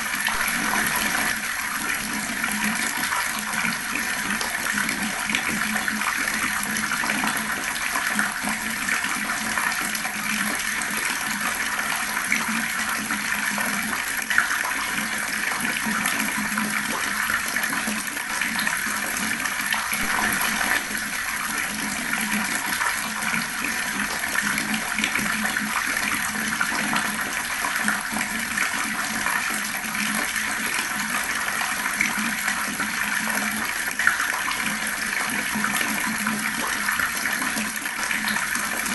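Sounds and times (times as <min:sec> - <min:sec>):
water rushing: 0:00.0 - 0:01.8, 0:19.7 - 0:26.2.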